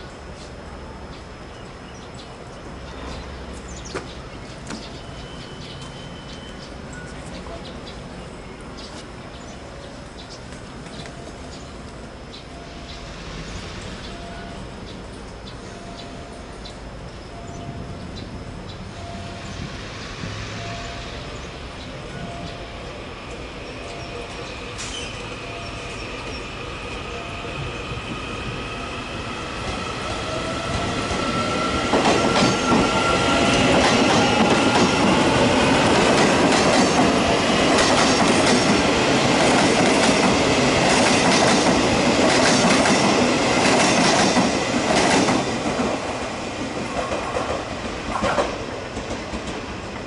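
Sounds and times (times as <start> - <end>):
electric train whine passing: 0.0 - 50.0
wheels clacking over rail joints: 31.8 - 50.0.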